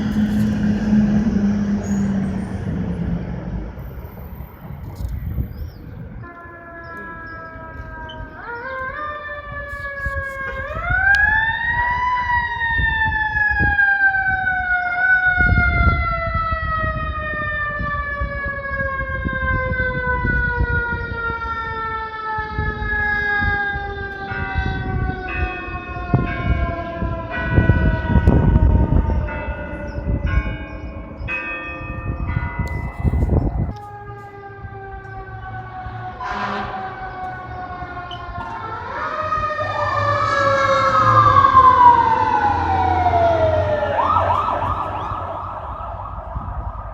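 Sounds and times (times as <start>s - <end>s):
truck engine rumbling: 0.0s - 6.2s, 26.0s - 46.9s
short horn blasts: 36.2s - 37.1s.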